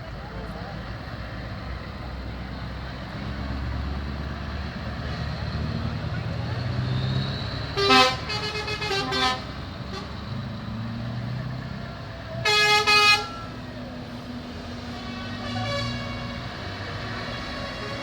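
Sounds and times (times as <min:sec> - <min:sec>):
truck engines rumbling: 0:00.0 - 0:18.0
truck horns blasting: 0:06.7 - 0:10.5, 0:12.3 - 0:13.9, 0:14.6 - 0:18.0.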